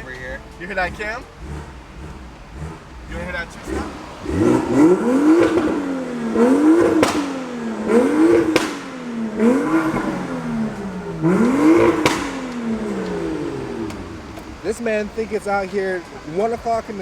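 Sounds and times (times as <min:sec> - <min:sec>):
car engine revving: 0:00.0 - 0:17.0
sharp exhaust pops: 0:00.0 - 0:17.0.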